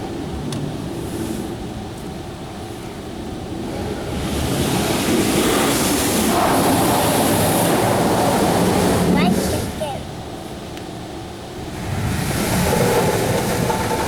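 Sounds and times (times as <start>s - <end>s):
water jets spraying onto car: 11.5s - 14.0s.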